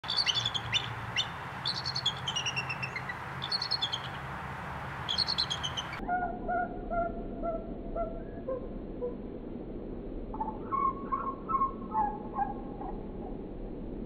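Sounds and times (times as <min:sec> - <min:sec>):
songbird chirping: 0:00.0 - 0:08.5
faint low hum: 0:00.0 - 0:14.0.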